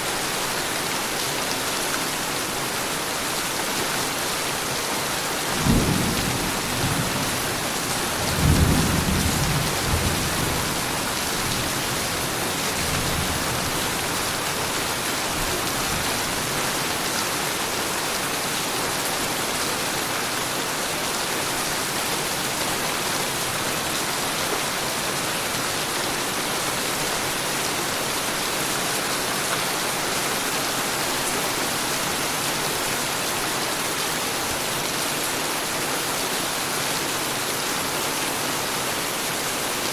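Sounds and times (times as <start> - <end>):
heavy rain: 0.0 - 39.9
low rolls of thunder: 5.6 - 7.4, 8.1 - 10.9.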